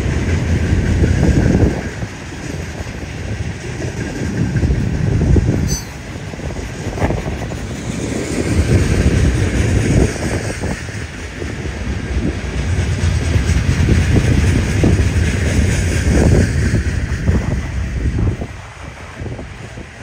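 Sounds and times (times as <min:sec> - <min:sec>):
freight train rumbling past: 0:00.0 - 0:20.0
steel wheels rattling on rails: 0:00.0 - 0:20.0.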